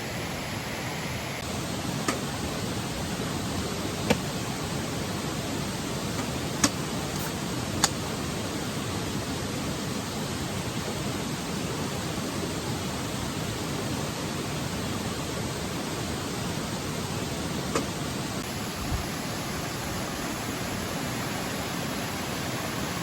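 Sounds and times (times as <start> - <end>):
steady rushing noise: 0.0 - 1.5, 18.4 - 23.0.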